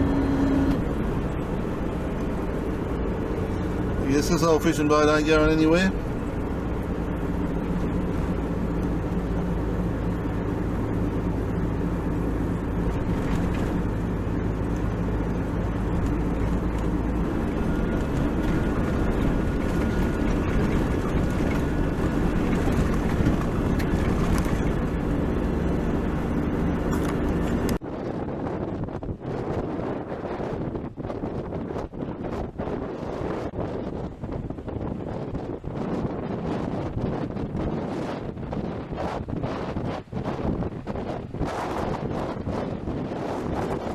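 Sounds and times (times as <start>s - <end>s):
vehicle engine driving: 0.0s - 27.8s.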